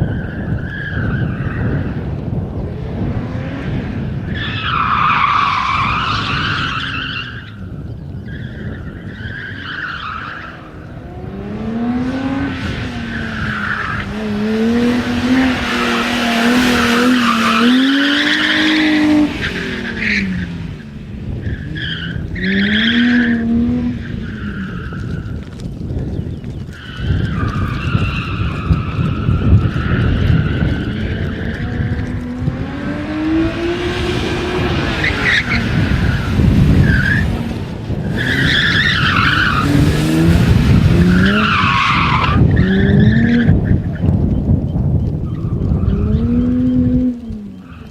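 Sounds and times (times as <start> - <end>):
car engine revving: 10.6 - 25.6, 28.6 - 43.9, 45.3 - 47.8.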